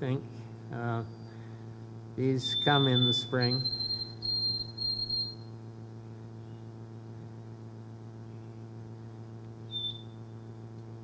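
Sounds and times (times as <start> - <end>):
low electrical hum: 0.0 - 11.0
sparrow song over loudspeaker: 2.2 - 4.1.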